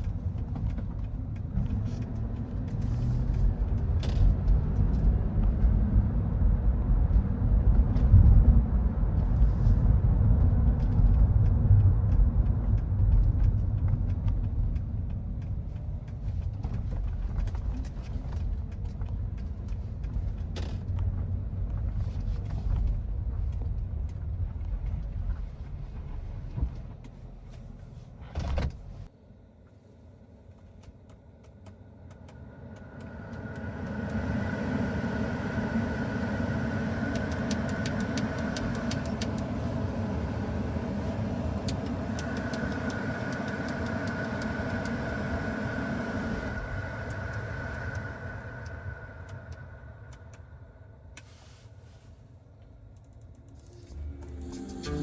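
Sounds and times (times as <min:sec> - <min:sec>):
car rumbling in motion: 0:00.0 - 0:55.0
steady hum with high whine: 0:28.4 - 0:55.0.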